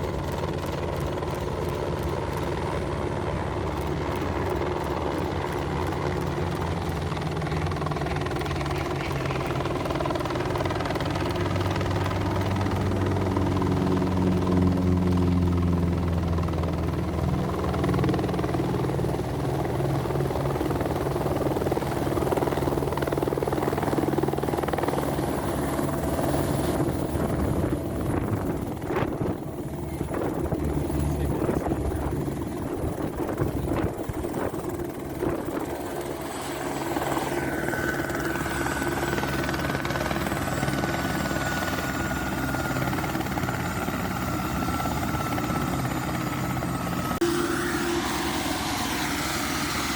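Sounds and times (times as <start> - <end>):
helicopter engine and rotor: 0.0 - 49.9
high turbine whine: 15.8 - 49.9.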